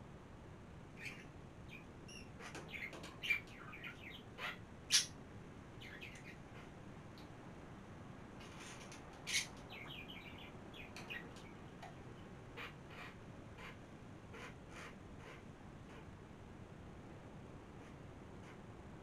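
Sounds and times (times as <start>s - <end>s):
small birds chirping: 1.0s - 7.3s, 8.5s - 13.8s.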